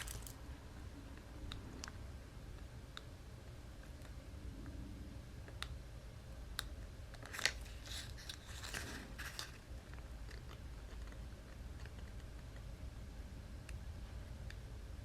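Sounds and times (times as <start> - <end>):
cardstock crackling and crunching: 0.0 - 0.4, 7.2 - 9.7.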